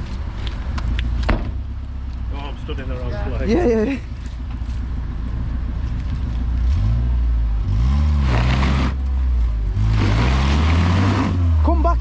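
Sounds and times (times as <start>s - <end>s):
car engine revving under load: 4.0s - 12.0s.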